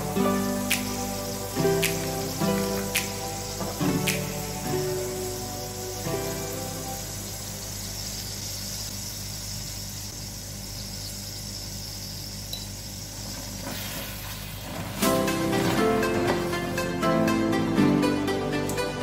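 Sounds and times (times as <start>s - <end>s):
music: 0.0s - 8.4s, 15.0s - 19.0s
prawns sizzling in oil: 0.0s - 17.0s.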